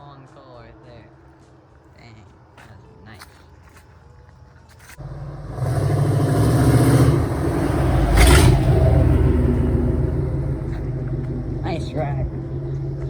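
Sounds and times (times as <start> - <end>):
truck engine accelerating: 5.0 - 13.0.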